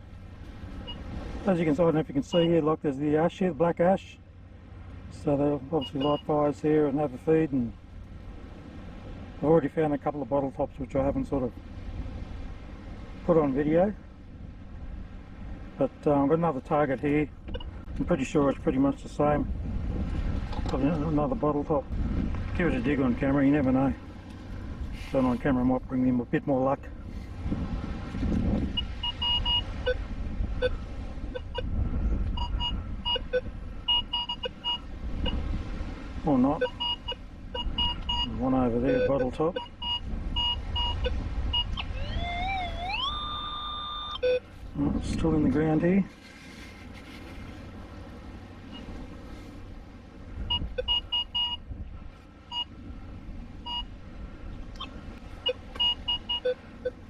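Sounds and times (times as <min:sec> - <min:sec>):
low background rumble: 0:00.0 - 0:57.0
metal detector beeping: 0:05.8 - 0:06.3, 0:28.7 - 0:30.0, 0:30.6 - 0:31.7, 0:32.3 - 0:35.4, 0:36.5 - 0:44.5, 0:50.5 - 0:51.6, 0:53.7 - 0:53.9, 0:54.8 - 0:57.0.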